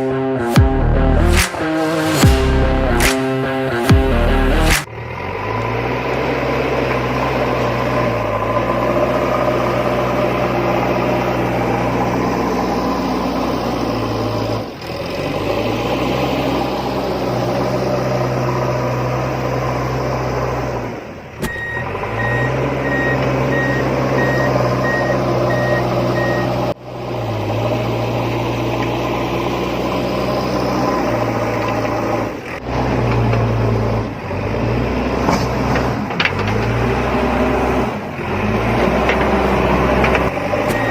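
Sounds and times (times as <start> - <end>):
heavy truck engine running: 0.0 - 40.9
high reversing beeps: 21.5 - 26.7, 40.6 - 40.9.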